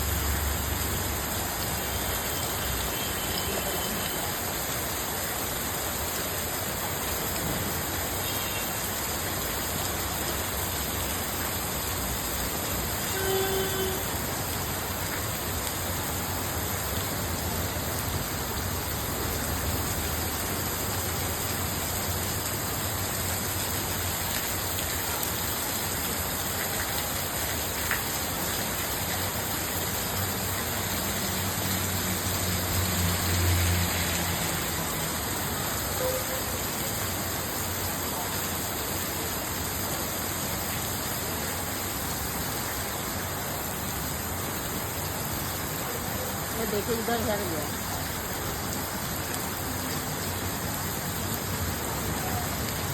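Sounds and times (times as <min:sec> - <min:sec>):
heavy rain falling: 0:00.0 - 0:52.9.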